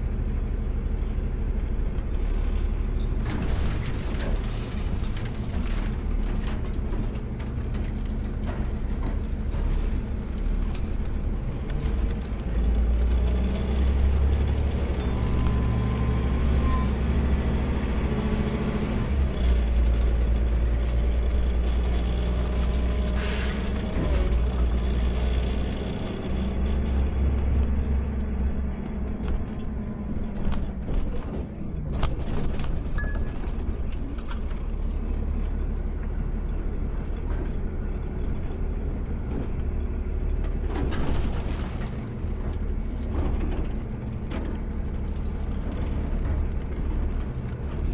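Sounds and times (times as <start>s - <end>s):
short air hiss: 23.2s - 23.7s.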